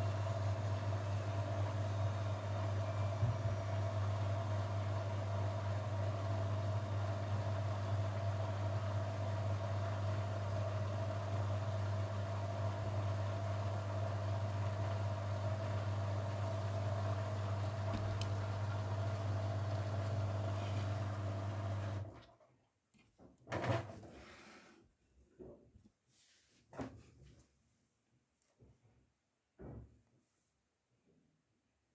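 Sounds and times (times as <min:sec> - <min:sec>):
washing machine humming: 0:00.0 - 0:22.2
thump: 0:29.6 - 0:30.0.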